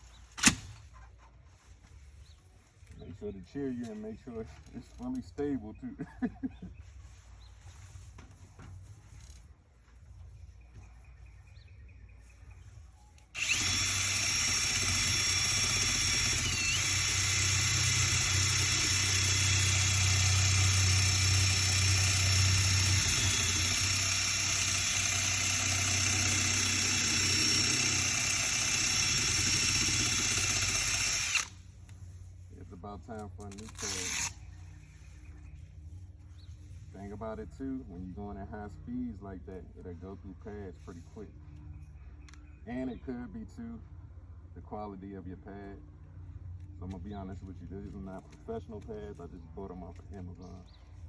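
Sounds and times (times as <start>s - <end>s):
electric drill sanding metal: 13.3s - 31.7s, 33.6s - 34.4s.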